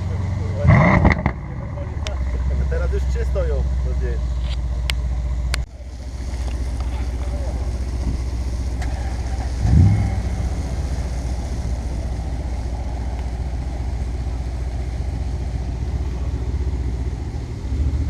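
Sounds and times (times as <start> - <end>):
engine throttle blip: 0.0 - 2.7
car engine idling: 0.0 - 18.0.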